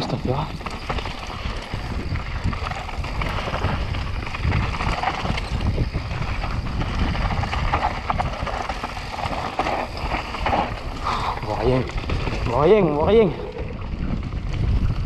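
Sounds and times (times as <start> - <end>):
bike frame and chain rattling: 0.0 - 15.0
tyres crunching over dirt and stones: 0.0 - 15.0
wind rumble on microphone: 0.0 - 15.0.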